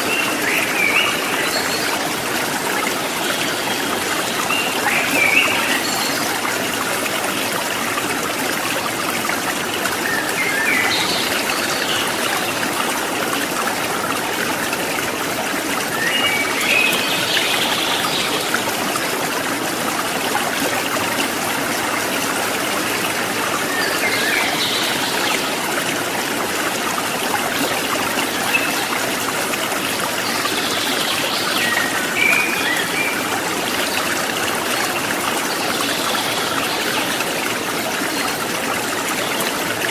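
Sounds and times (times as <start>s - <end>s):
water trickling over rocks: 0.0s - 39.9s.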